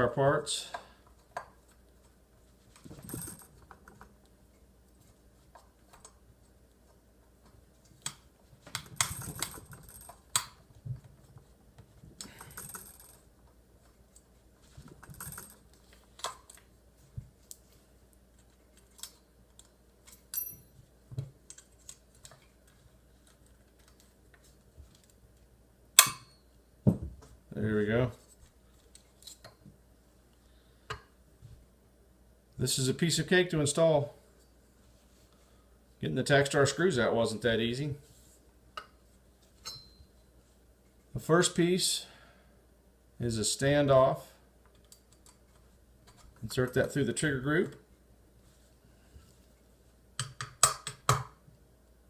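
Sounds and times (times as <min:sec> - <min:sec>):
screwdriver clicking and tapping: 0:50.2 - 0:51.3.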